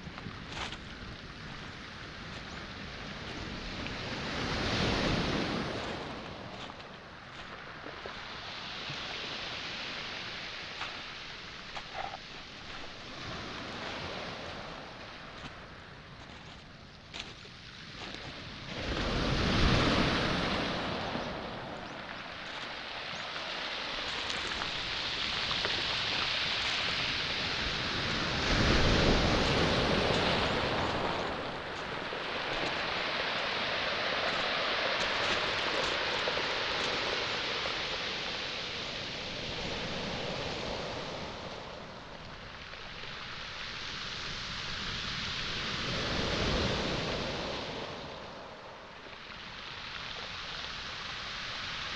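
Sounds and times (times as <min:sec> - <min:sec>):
footsteps on pebbles: 0:00.0 - 0:04.0, 0:05.8 - 0:08.3, 0:10.7 - 0:13.1, 0:15.3 - 0:18.4, 0:21.8 - 0:27.2, 0:28.4 - 0:37.1
water hissing over stones: 0:00.0 - 0:51.9
waves breaking on pebbles: 0:00.0 - 0:51.9.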